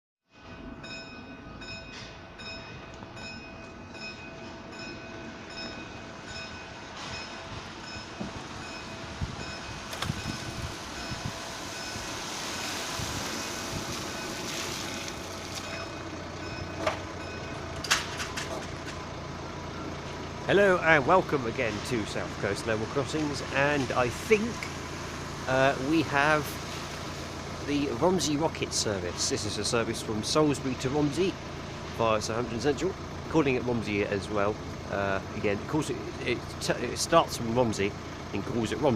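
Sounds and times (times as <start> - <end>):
train passing: 0.4 - 31.9
level crossing warning alarm: 0.6 - 21.8.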